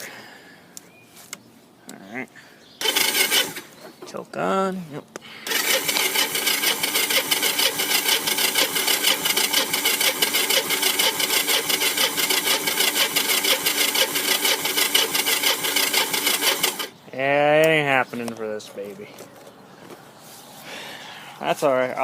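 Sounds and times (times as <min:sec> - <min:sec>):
engine cranking with starter: 0:02.8 - 0:03.7, 0:05.4 - 0:17.0.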